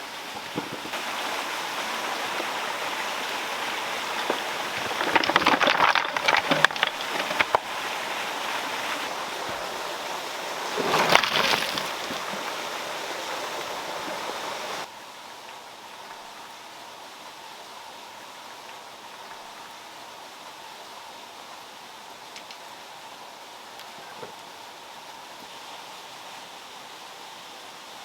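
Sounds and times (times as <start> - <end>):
water flowing: 0.0 - 14.9
water splashing and sloshing: 0.5 - 14.9.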